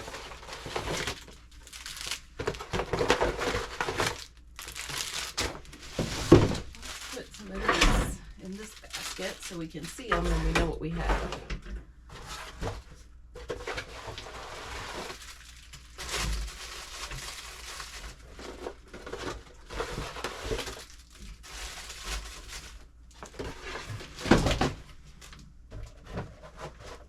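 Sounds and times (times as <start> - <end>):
packages rustling and crinkling: 0.0 - 27.0
items knocked on shelves: 5.4 - 7.0.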